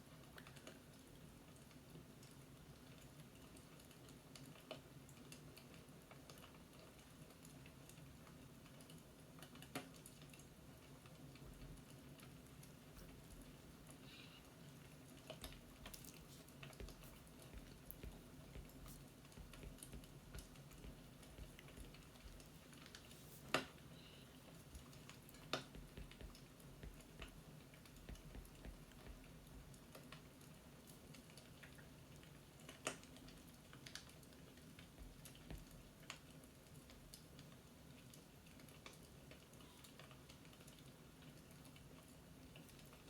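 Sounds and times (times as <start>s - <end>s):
low steady hum: 10.4s - 37.6s
light clicks and taps: 15.1s - 43.0s.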